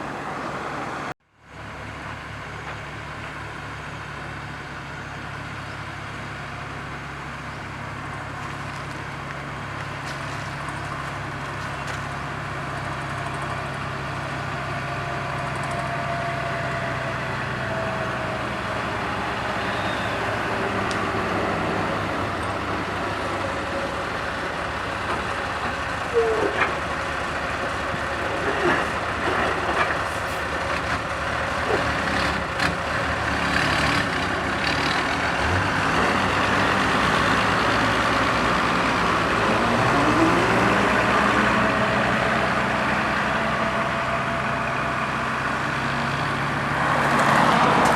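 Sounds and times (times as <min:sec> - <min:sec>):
heavy diesel machinery running: 0:00.0 - 0:47.9.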